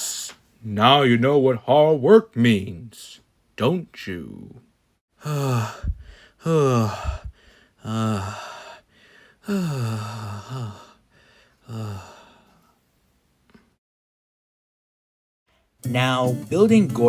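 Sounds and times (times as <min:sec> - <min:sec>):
man sighing: 0:05.2 - 0:12.5.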